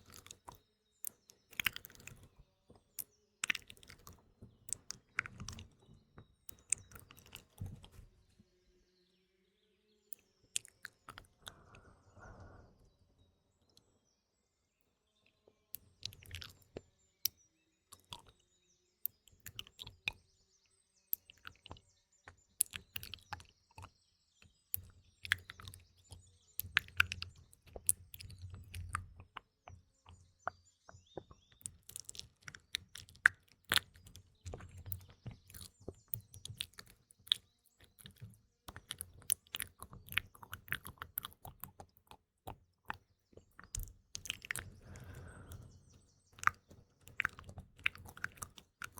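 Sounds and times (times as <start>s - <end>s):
wet lip and tongue clicks: 0.0s - 5.7s, 6.5s - 8.0s, 10.6s - 11.8s, 15.8s - 16.8s, 17.9s - 18.4s, 19.1s - 20.2s, 21.2s - 48.9s
faint birdsong: 0.0s - 48.9s.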